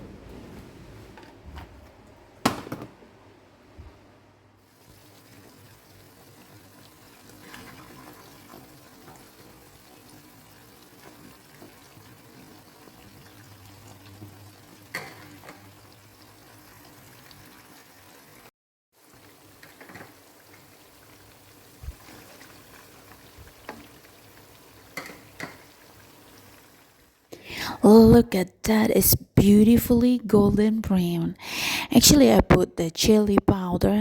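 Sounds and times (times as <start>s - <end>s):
chicken sizzling in oil: 4.7s - 27.2s.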